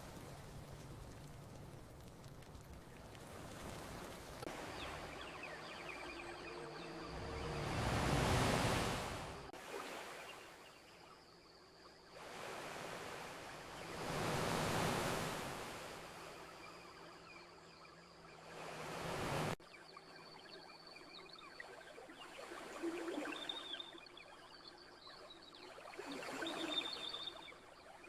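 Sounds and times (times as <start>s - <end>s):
ocean waves washing onto beach: 0.0s - 10.6s, 12.2s - 16.8s, 18.3s - 19.6s.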